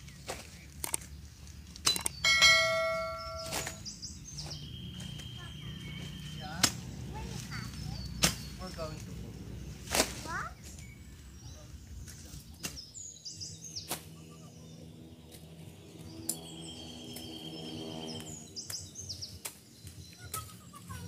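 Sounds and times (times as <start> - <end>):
dry corn leaves crackling underfoot: 0.0 - 1.8, 3.4 - 3.8, 9.8 - 11.2
small birds chirping: 0.0 - 21.0.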